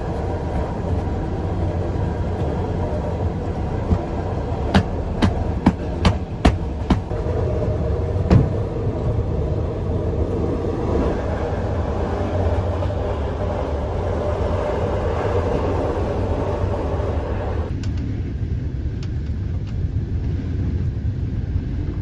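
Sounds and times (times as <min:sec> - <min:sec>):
train rumbling on rails: 0:00.0 - 0:22.0
wheel clack over rail joint: 0:03.8 - 0:07.2, 0:08.2 - 0:08.7.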